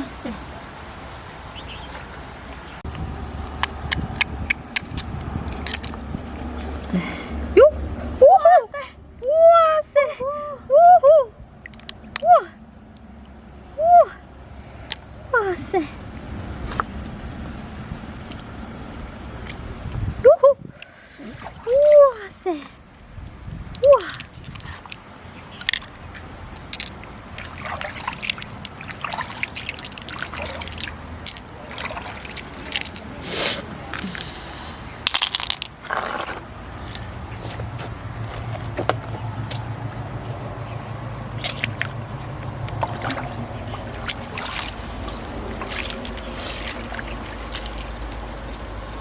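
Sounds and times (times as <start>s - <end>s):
water trickling: 0.0s - 8.9s, 11.5s - 49.0s
wet clicks and crackles: 2.5s - 6.9s, 11.6s - 12.3s, 23.7s - 33.2s, 33.9s - 39.9s, 41.3s - 49.0s.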